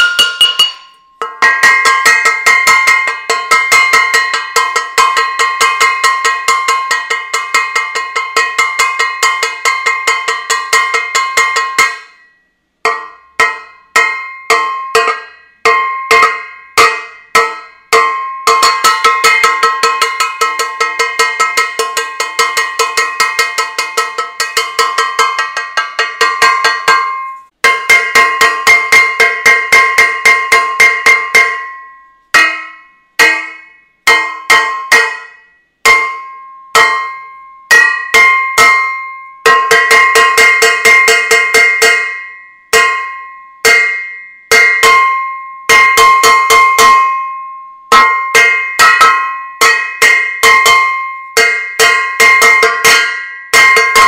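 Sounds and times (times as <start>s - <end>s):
metal saucepan clanging: 0.0s - 12.1s.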